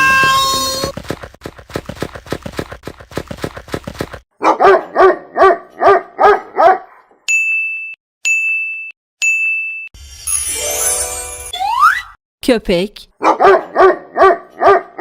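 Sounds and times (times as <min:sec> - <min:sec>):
dog barking: 0:04.4 - 0:07.2, 0:13.2 - 0:15.0
high-pitched electronic beeps: 0:10.5 - 0:12.2.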